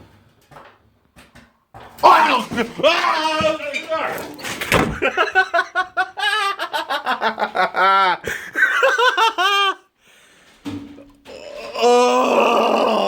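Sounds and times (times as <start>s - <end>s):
hearty human laughter: 2.0s - 9.9s.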